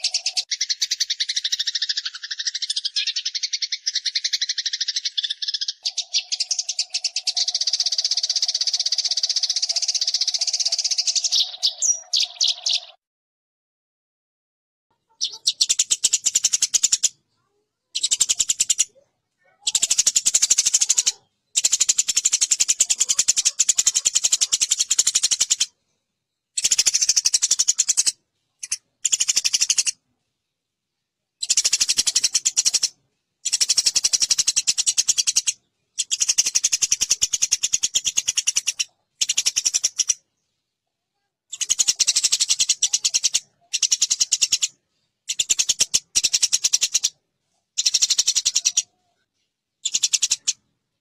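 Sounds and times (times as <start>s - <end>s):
sparrows chattering harshly: 0.0s - 13.0s, 14.9s - 30.1s, 31.4s - 40.8s, 41.5s - 50.7s.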